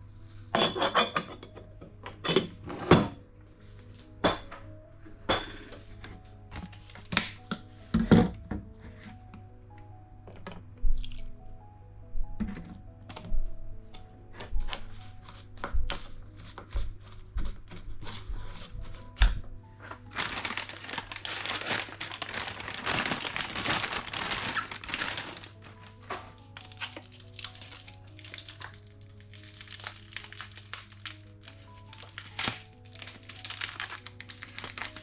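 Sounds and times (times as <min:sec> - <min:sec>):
soft background music: 0:00.0 - 0:35.0
crinkling and rustling: 0:05.6 - 0:09.5, 0:12.4 - 0:35.0.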